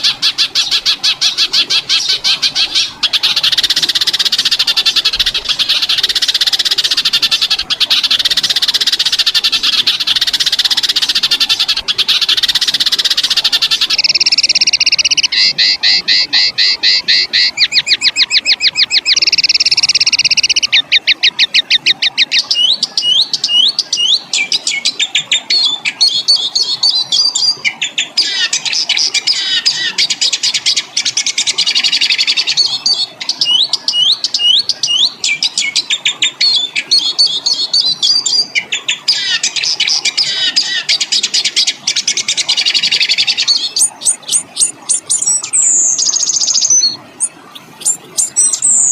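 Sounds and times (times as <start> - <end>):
songbird song: 0.0 - 48.9.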